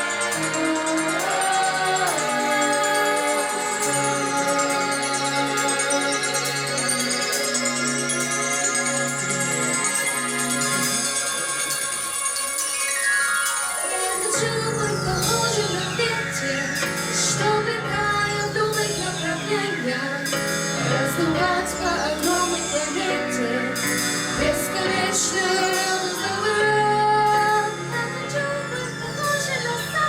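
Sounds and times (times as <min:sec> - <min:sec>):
women singing: 0:00.0 - 0:07.0, 0:13.8 - 0:30.0
instrumental accompaniment: 0:00.0 - 0:30.0.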